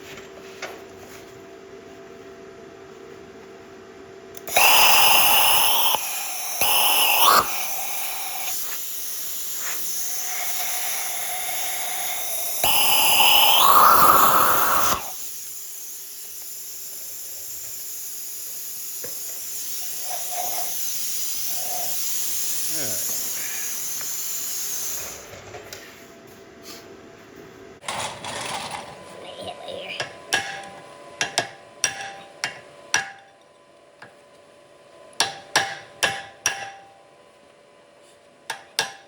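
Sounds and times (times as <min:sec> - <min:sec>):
plasma cutting torch hissing: 0:04.4 - 0:25.2.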